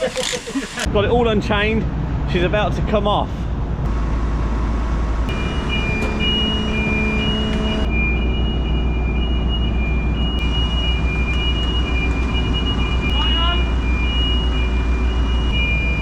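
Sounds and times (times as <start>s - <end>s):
heavy diesel engine running: 0.0s - 16.0s
high whining tones: 5.2s - 16.0s.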